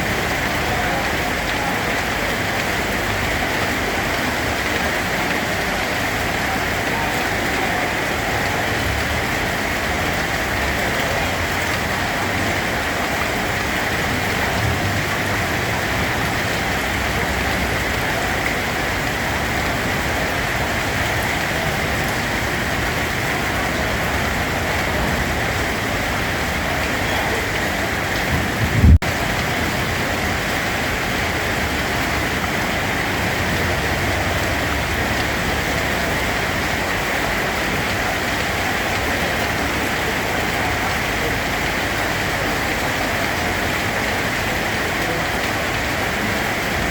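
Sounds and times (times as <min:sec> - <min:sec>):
steady rain falling: 0:00.0 - 0:46.9
low thump: 0:28.3 - 0:29.1.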